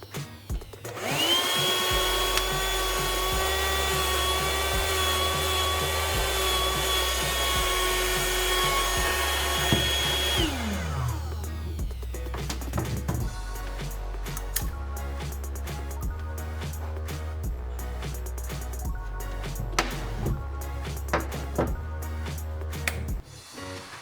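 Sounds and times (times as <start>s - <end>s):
background music: 0.0s - 24.0s
vacuum cleaner motor whining: 0.8s - 11.8s.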